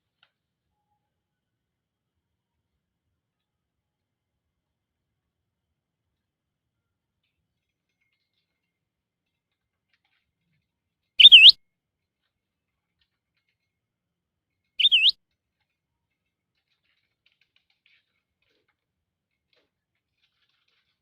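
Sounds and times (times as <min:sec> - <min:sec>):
budgerigar chirping: 0:11.2 - 0:11.6, 0:14.8 - 0:15.1.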